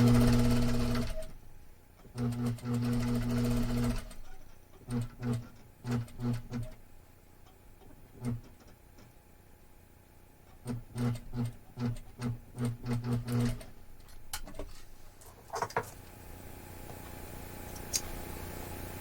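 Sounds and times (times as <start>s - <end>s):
sewing machine stitching: 0.0s - 1.4s, 2.0s - 6.8s, 10.6s - 13.8s.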